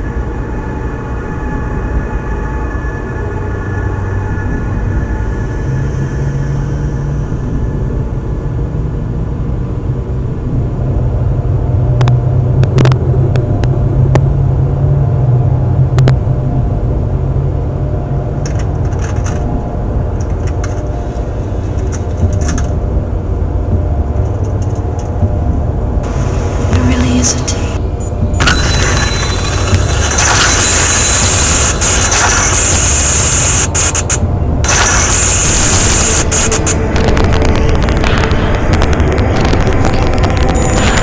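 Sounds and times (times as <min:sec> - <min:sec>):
low rumble: 0:00.0 - 0:41.0
hissy bursts: 0:28.8 - 0:36.8.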